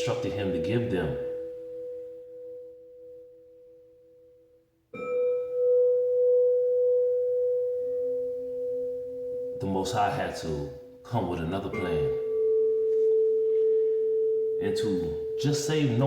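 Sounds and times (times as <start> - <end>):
singing bowl ringing: 0.0 - 10.9, 11.6 - 16.0.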